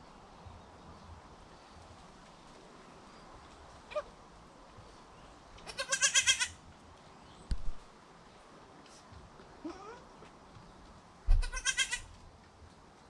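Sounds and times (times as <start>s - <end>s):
goat bleating: 5.7s - 6.6s, 11.3s - 12.1s.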